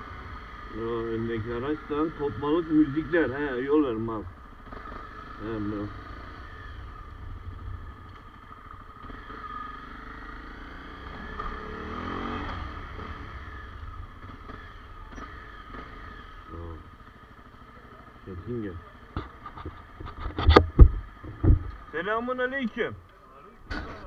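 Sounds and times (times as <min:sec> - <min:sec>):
motorcycle engine at low revs: 0:00.0 - 0:24.0.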